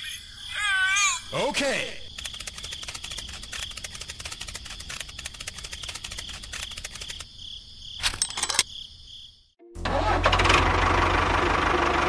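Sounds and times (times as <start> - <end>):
crickets chirping: 0.0 - 9.6.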